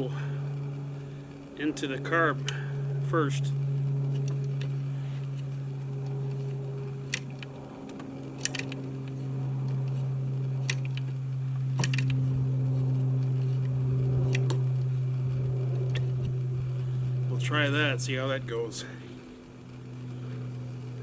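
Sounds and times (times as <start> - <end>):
steady low hum: 0.0 - 21.0
hands clicking and tapping engine: 3.6 - 17.8.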